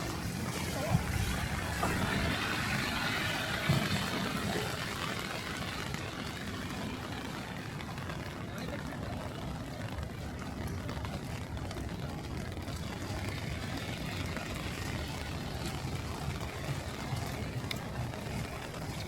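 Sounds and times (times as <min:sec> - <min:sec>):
rain hissing: 0:00.0 - 0:08.4
traffic: 0:00.0 - 0:19.0
wind buffeting microphone: 0:00.0 - 0:19.0.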